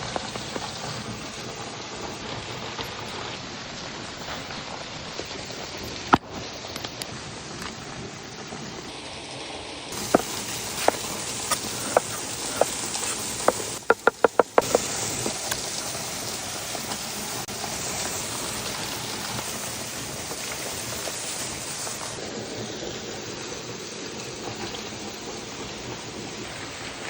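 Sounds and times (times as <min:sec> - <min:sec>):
campfire cooking sizzle: 0:00.0 - 0:27.0
knocks: 0:10.0 - 0:12.8, 0:13.5 - 0:14.9.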